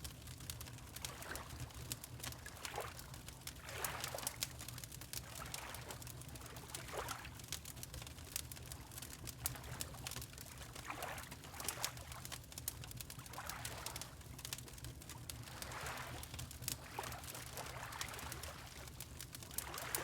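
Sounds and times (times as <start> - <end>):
wood fire crackling: 7.6 - 10.5, 18.0 - 20.0
water lapping: 15.4 - 18.9, 19.6 - 20.0.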